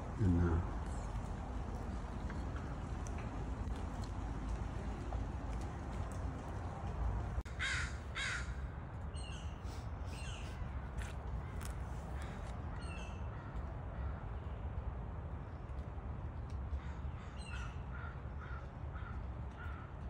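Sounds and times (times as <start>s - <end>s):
steady low rumble: 0.0s - 7.5s.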